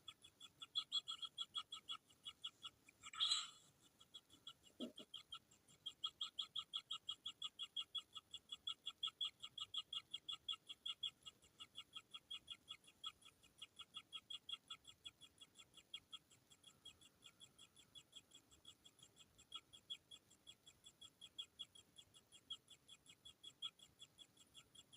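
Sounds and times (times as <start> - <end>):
chicks begging calls: 2.4 - 3.6.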